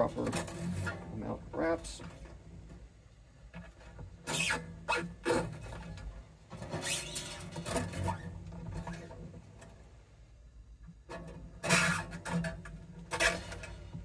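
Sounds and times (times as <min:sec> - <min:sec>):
guitar string scraping on tuner: 0:00.0 - 0:02.3, 0:03.6 - 0:09.2.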